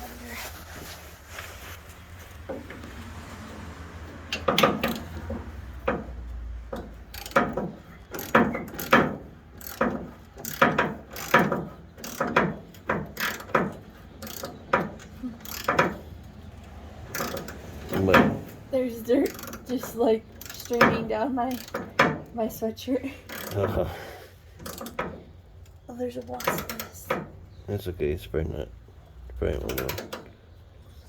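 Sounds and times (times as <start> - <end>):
ratchet wrench clicking: 4.3 - 6.1, 6.8 - 16.1, 17.1 - 18.2, 18.9 - 22.1, 23.2 - 23.8, 24.6 - 25.8.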